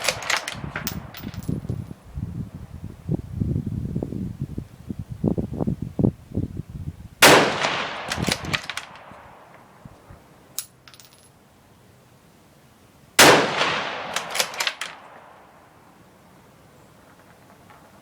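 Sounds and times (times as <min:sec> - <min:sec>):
rifle shots with echo: 0:07.2 - 0:09.6, 0:13.2 - 0:15.4.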